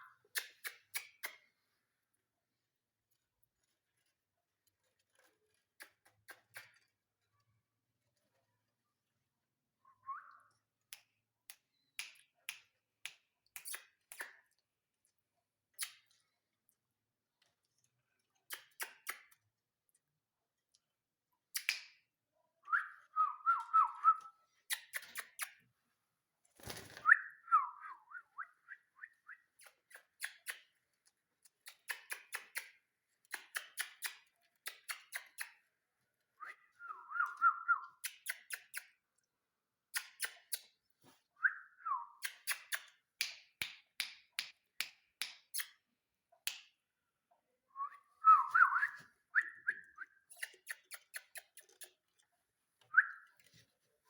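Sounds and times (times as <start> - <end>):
parrot clicks and chirps: 0.1 - 1.6, 10.3 - 14.6, 18.4 - 19.4, 21.5 - 22.0, 22.7 - 25.6, 26.6 - 35.7, 36.4 - 39.0, 39.9 - 40.8, 41.4 - 45.8, 47.8 - 53.6
parrot whistles: 47.8 - 50.5.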